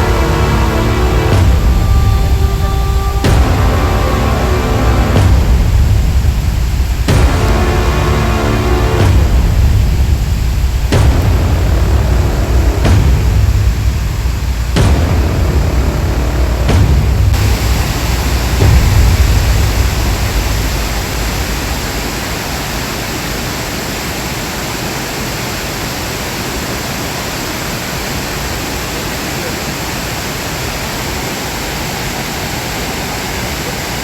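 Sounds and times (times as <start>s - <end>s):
low rumble: 0.0s - 23.2s
waterfall roaring: 0.0s - 34.0s.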